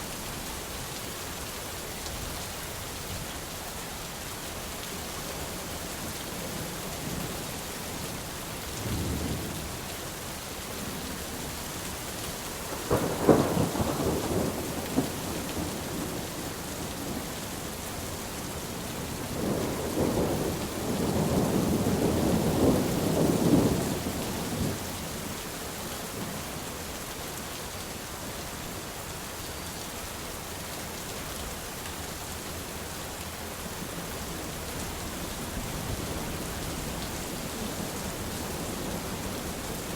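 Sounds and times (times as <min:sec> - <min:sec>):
steady rain: 0:00.0 - 0:39.9
rolling thunder rumble: 0:12.9 - 0:16.3, 0:18.7 - 0:24.8.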